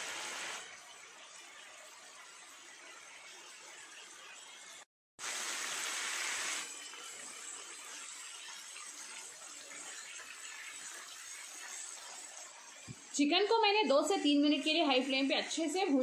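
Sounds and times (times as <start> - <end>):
chicken sizzling in hot oil: 0.0 - 14.4
spatula stirring on griddle: 7.1 - 13.2.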